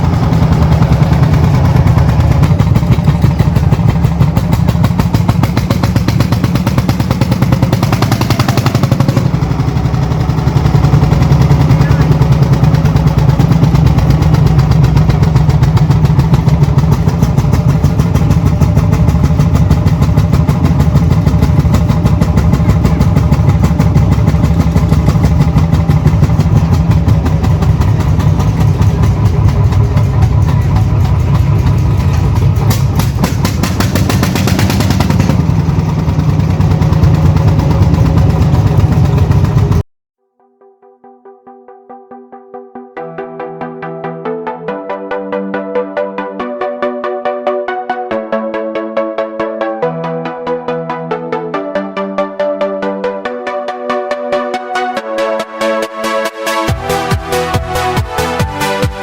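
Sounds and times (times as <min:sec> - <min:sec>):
tractor diesel engine running: 0:00.0 - 0:39.8, 0:56.2 - 0:59.0.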